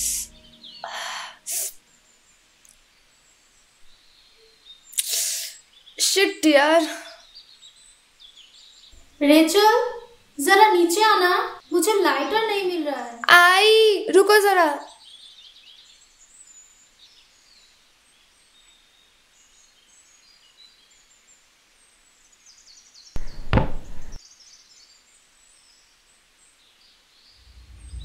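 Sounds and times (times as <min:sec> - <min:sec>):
faint bird chirping: 0:00.0 - 0:28.0
loud thud: 0:23.2 - 0:24.2, 0:27.4 - 0:28.0.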